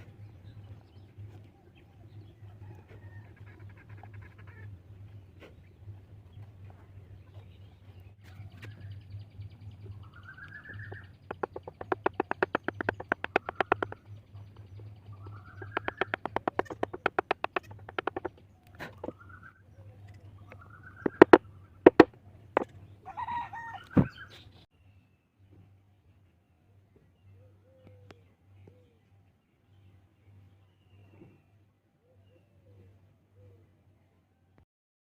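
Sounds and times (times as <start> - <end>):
bird calling: 10.1 - 14.1, 15.2 - 19.5, 20.4 - 24.1
sharp loud knocks: 11.3 - 14.1, 15.7 - 18.3, 21.1 - 22.7.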